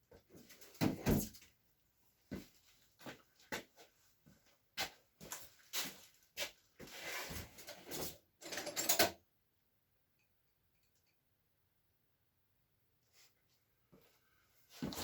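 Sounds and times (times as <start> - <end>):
metal tools handled on workbench: 7.6 - 9.2.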